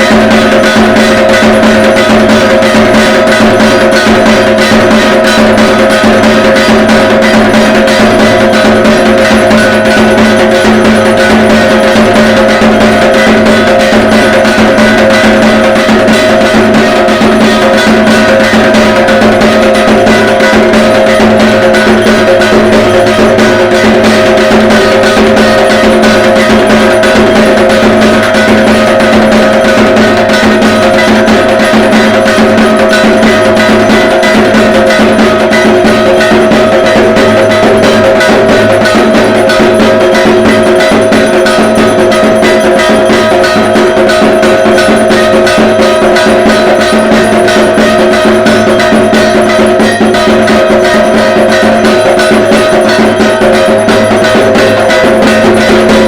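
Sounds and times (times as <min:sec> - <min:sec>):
barrel drum beaten fast: 0:00.0 - 0:56.0
steady ringing tone: 0:00.0 - 0:56.0.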